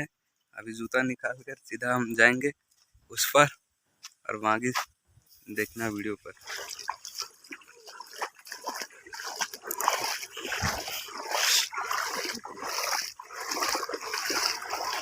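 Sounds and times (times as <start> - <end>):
feet splashing in shallow water: 5.4 - 15.0.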